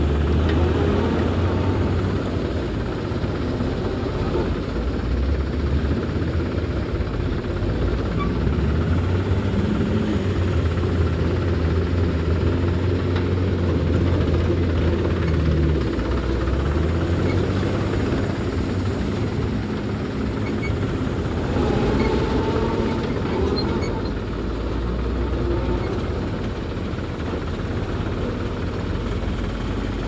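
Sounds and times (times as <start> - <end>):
heavy diesel engine running: 0.0 - 30.0.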